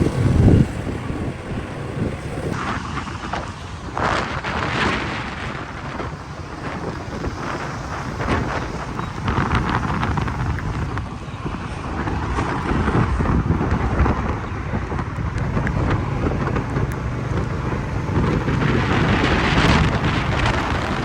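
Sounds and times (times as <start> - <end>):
motorcycle engine: 0.0 - 3.8, 15.4 - 21.0
road noise: 0.0 - 21.0
wind rushing over microphone: 0.0 - 21.0.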